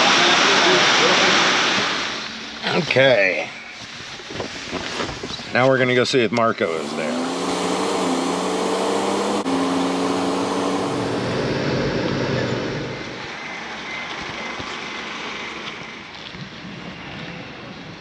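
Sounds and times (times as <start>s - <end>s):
car engine humming: 6.7s - 13.3s
road noise: 6.7s - 13.4s.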